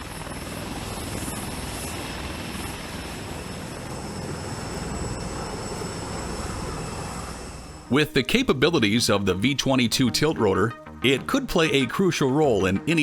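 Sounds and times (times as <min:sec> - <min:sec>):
high turbine whine: 0:00.0 - 0:08.2.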